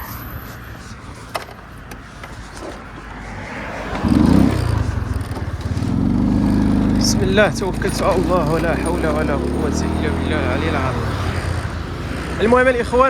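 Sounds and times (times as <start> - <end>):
vehicle engine and road rumble: 0.0 - 13.0
loud engine note: 3.1 - 13.0.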